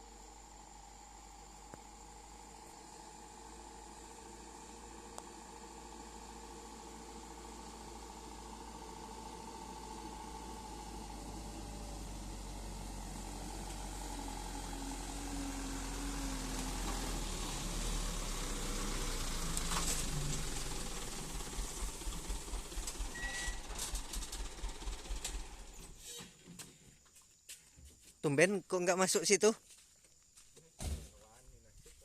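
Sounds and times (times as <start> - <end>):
truck engine chugging: 20.0 - 25.7.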